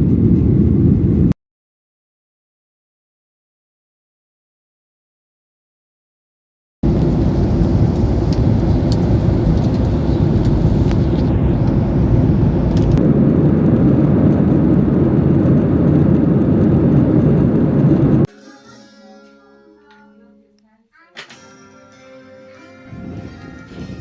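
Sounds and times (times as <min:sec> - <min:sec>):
loud steady low rumbling: 0:00.0 - 0:01.3, 0:06.8 - 0:18.3
faint clicks: 0:06.9 - 0:13.0.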